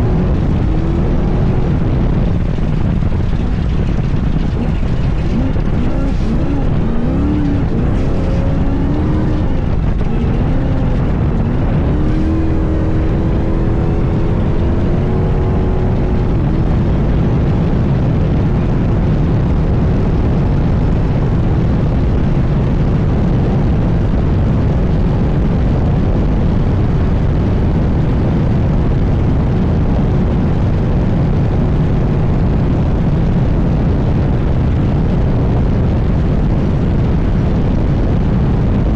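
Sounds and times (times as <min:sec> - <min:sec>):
race car engine revving: 0:00.0 - 0:24.5.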